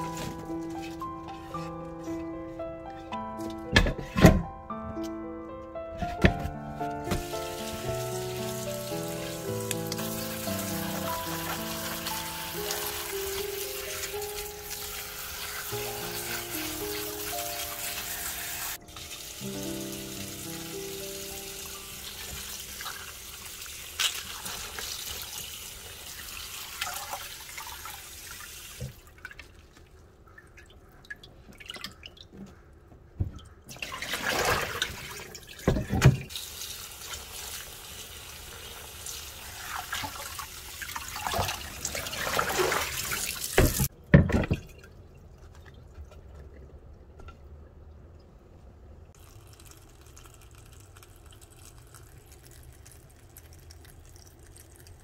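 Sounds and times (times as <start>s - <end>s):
tap water splashing in a sink: 7.1s - 17.7s, 22.0s - 29.9s, 33.2s - 37.8s, 39.5s - 44.9s.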